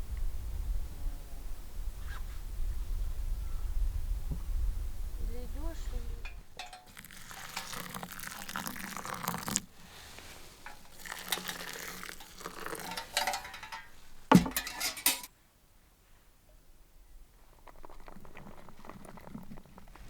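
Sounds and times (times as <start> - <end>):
sharp clatter: 6.2 - 9.1, 10.2 - 15.3
camp gear rustling and crinkling: 6.2 - 15.3, 17.4 - 20.0
cookware clinking: 6.2 - 15.3.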